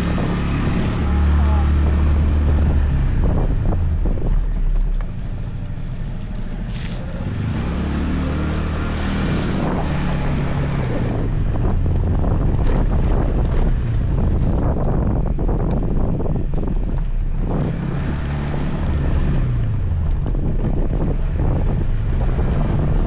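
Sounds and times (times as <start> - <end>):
motor scooter engine running: 0.0 - 17.3
wind buffeting microphone: 0.0 - 23.0.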